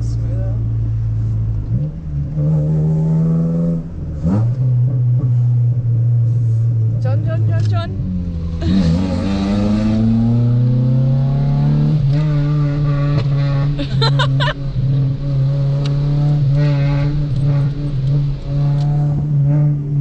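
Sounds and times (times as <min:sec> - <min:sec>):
car exhaust heard from cabin: 0:00.0 - 0:20.0.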